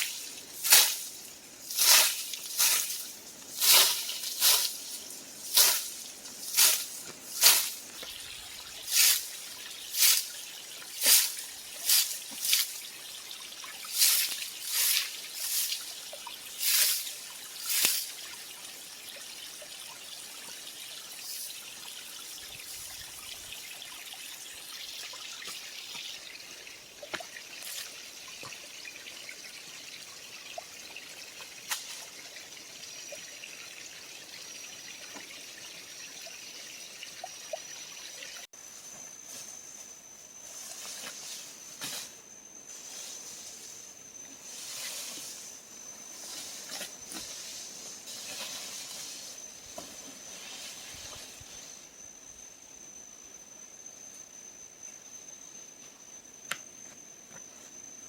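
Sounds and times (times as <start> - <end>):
creek trickling: 0.0 - 38.5.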